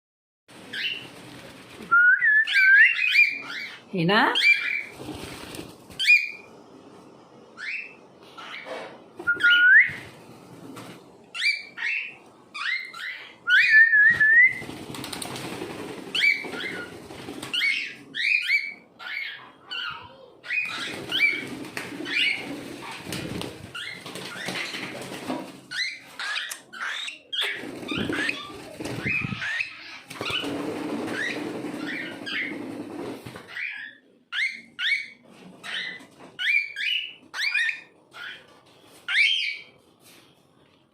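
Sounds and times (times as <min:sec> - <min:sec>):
cockatiel chirping: 0:17.5 - 0:21.4.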